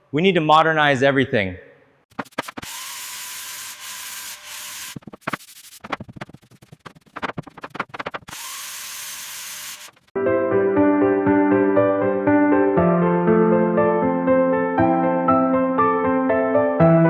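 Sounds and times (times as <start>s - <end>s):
quick rasping sanding strokes: 2.1s - 10.1s
sanding wall gritty hiss: 2.2s - 10.1s.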